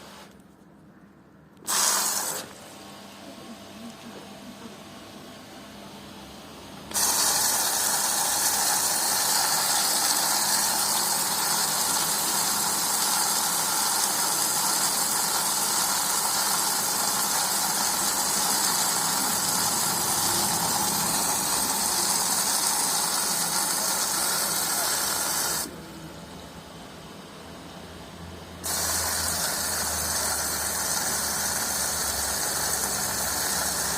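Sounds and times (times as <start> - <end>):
water rushing into washing machine: 6.9 - 25.7, 28.6 - 33.9.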